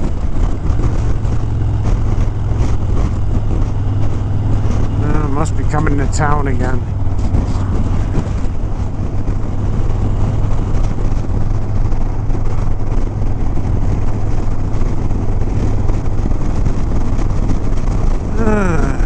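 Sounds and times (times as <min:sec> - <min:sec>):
motorcycle engine running: 0:00.0 - 0:19.0
road noise: 0:00.0 - 0:19.0
wind noise: 0:00.0 - 0:19.0.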